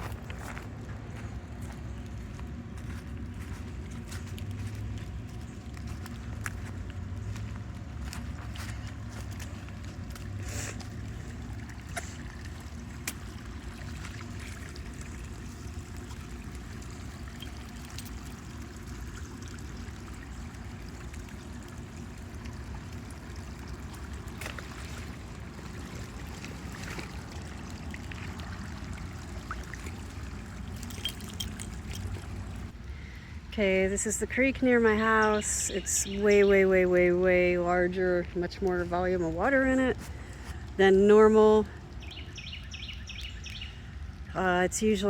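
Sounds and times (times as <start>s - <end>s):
flooded creek rushing: 2.8s - 32.8s.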